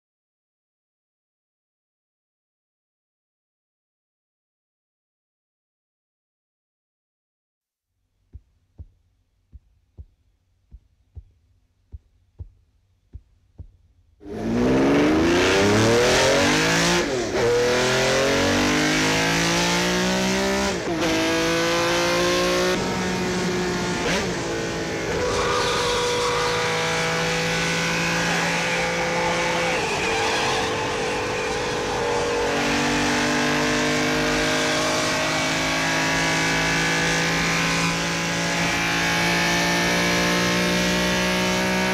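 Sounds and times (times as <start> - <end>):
car engine accelerating: 14.2 - 41.9.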